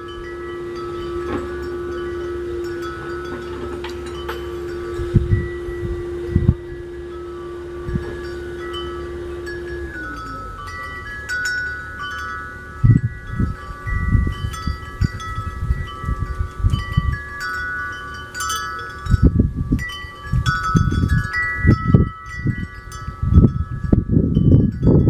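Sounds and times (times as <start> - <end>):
low thumps: 0.0 - 17.2
wind chimes ringing: 0.0 - 25.0.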